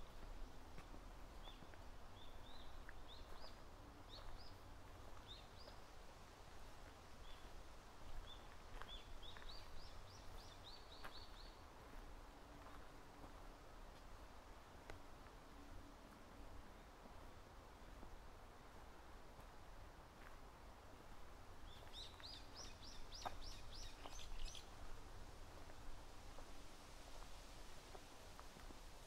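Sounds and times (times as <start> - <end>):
songbird chirps: 0.0 - 6.0, 6.8 - 13.4, 21.5 - 24.9
low background noise: 0.0 - 29.0.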